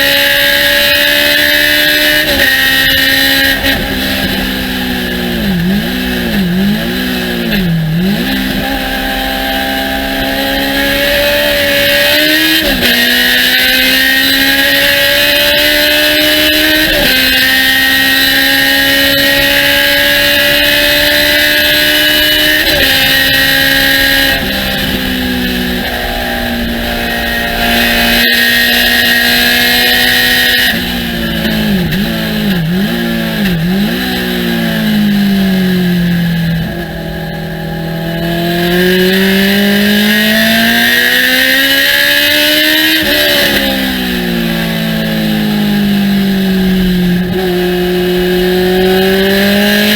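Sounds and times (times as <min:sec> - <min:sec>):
race car engine revving: 0:00.0 - 0:49.9.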